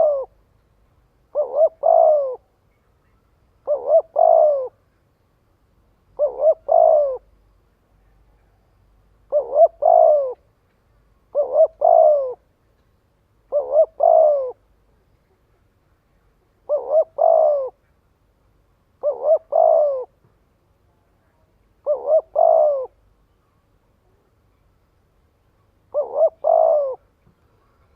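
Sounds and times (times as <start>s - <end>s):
dove cooing: 0.0s - 0.4s, 1.3s - 2.5s, 3.6s - 4.8s, 6.2s - 7.3s, 9.2s - 10.4s, 11.3s - 12.5s, 13.5s - 14.7s, 16.5s - 17.8s, 19.0s - 20.2s, 21.8s - 23.0s, 25.9s - 27.9s.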